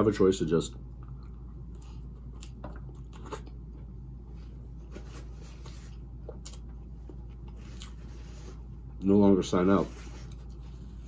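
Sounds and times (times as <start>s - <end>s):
low room hum: 0.0s - 11.0s
person chewing food: 1.0s - 4.0s, 6.0s - 8.0s.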